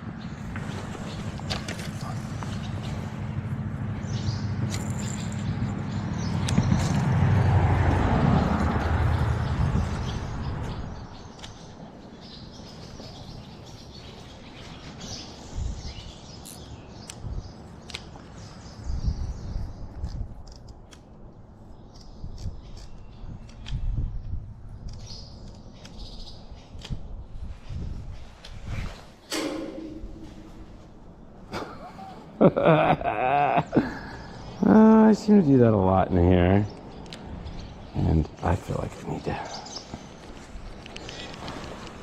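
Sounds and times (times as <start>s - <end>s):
small birds chirping: 0.0s - 32.6s, 33.6s - 42.0s
low rumble: 29.3s - 31.5s.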